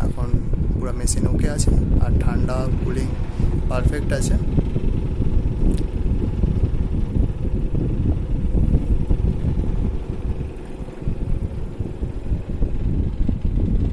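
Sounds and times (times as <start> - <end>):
air conditioner blower rumble: 0.0 - 13.9
faint steady hum: 0.0 - 13.9.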